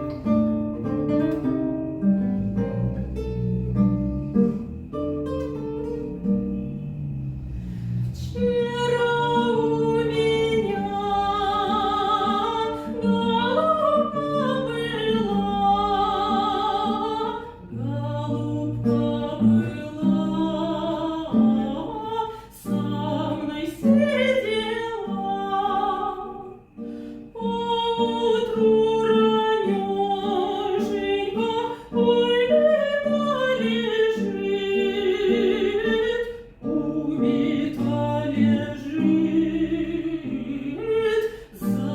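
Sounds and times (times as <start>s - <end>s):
instrumental accompaniment: 0.0s - 8.4s
classical solo singing: 8.3s - 26.7s, 27.4s - 41.9s.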